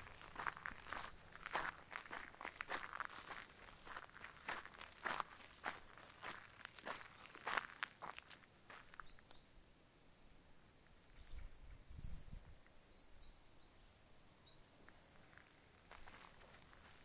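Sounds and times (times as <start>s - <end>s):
small bird chirps: 8.7s - 9.6s, 10.9s - 11.6s, 12.6s - 17.0s.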